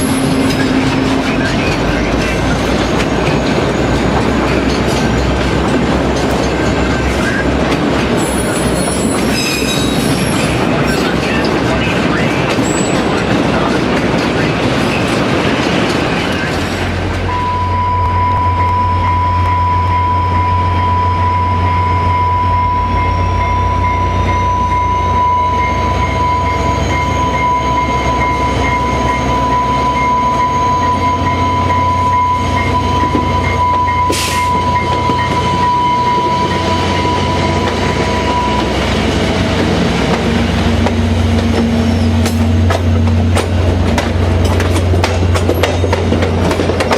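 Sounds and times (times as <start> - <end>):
diesel locomotive drone: 0.0 - 46.9
train passing: 0.0 - 46.9
long steady high tone: 17.3 - 39.4.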